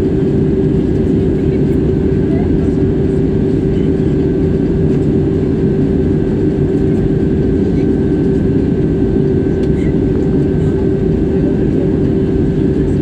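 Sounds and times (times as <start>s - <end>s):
jet engine drone: 0.0s - 13.0s.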